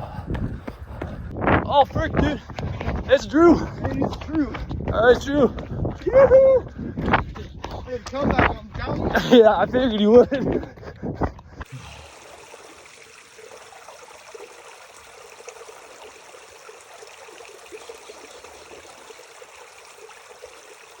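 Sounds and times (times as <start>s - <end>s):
spring water trickling: 11.6s - 21.0s.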